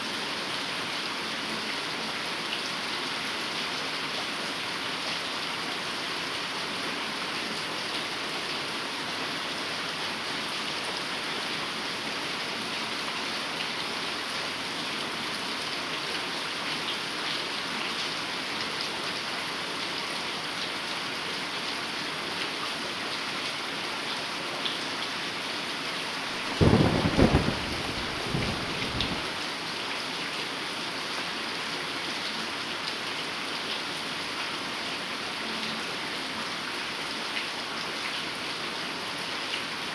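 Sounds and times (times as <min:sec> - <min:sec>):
heavy rain falling: 0:26.0 - 0:30.1
thunder crack and rumble: 0:26.4 - 0:29.4.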